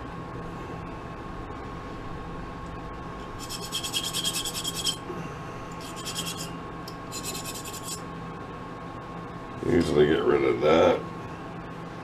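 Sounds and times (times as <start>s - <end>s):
steady hum: 0.0s - 12.0s
tool scraping a metal nut: 3.4s - 5.0s, 5.8s - 6.5s, 7.1s - 8.0s.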